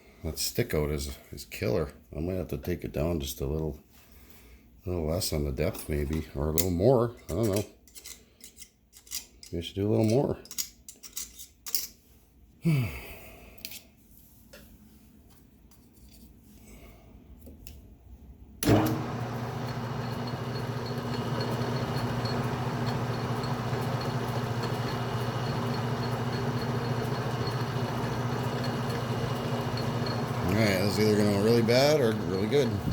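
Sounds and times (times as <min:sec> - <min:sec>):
lathe motor humming: 0:18.6 - 0:32.9.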